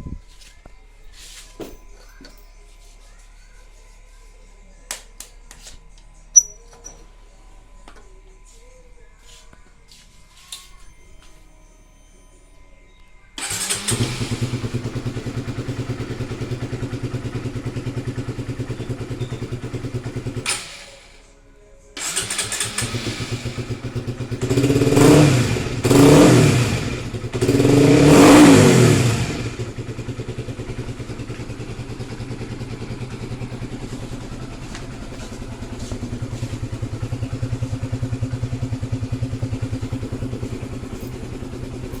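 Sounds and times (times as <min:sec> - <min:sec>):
motorcycle engine idling and revving: 0:13.4 - 0:20.8, 0:22.0 - 0:42.0.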